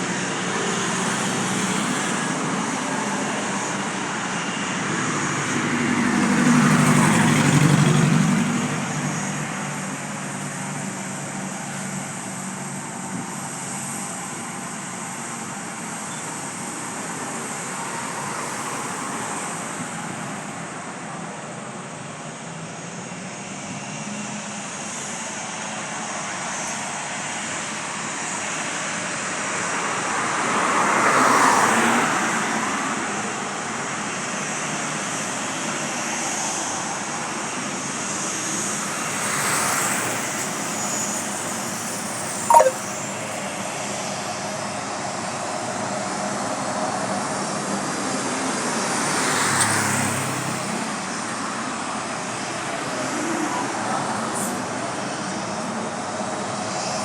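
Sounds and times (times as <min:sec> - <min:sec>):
sharp falling chirp: 0:42.5 - 0:43.1.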